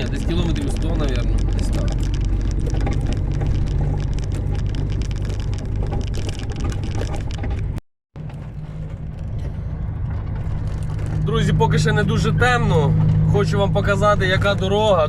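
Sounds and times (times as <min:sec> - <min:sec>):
cab rattles and knocks: 0:00.0 - 0:11.3
truck engine and road drone: 0:00.0 - 0:15.0.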